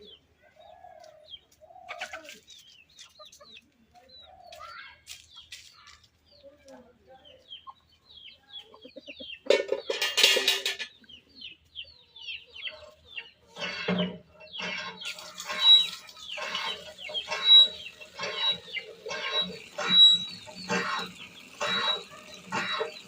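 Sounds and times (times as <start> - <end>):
chickens clucking: 0.0 - 23.0
high falling chirps: 14.5 - 23.0
chicken squawk: 14.6 - 23.0.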